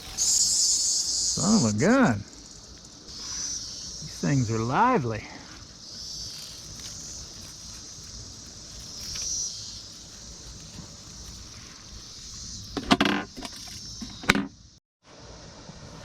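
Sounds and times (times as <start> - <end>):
cicadas droning: 0.0 - 16.0
loud rustle: 5.4 - 14.0.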